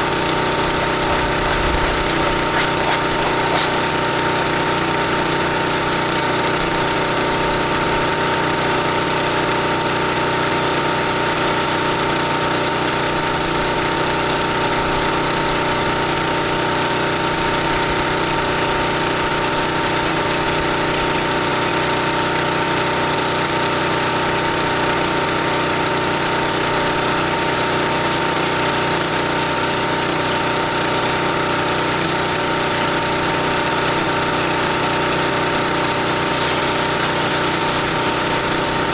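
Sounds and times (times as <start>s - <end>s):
water spray hissing: 0.0s - 13.4s, 31.9s - 38.9s
pressure washer engine: 0.0s - 38.9s.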